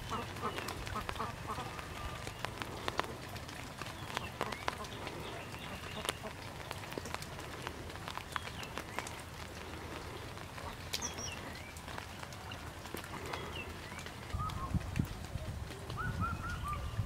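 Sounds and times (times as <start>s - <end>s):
light rain: 0.0s - 17.0s.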